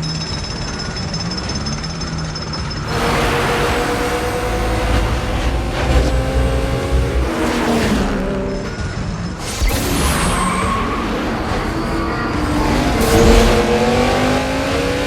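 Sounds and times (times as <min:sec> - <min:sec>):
racing car engines running hard: 0:00.0 - 0:15.0
loud rush of noise: 0:09.4 - 0:15.0.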